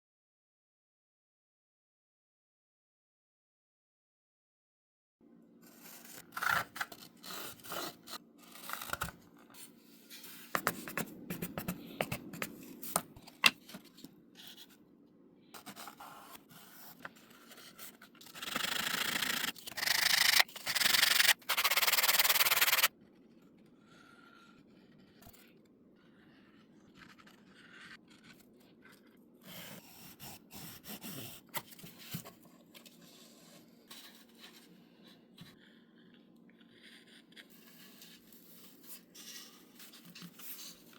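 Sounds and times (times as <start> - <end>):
rubbing and scraping: 16.6 - 22.9.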